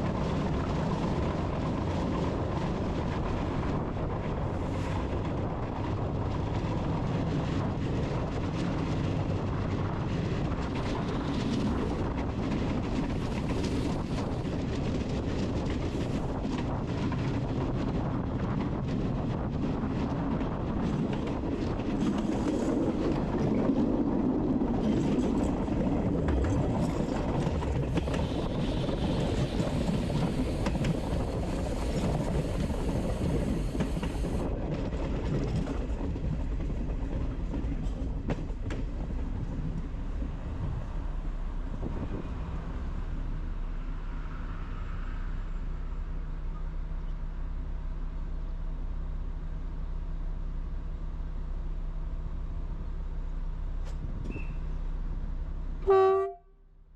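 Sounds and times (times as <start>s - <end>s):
wheels clicking on rails: 0.0s - 42.8s
train rumbling: 0.0s - 56.6s.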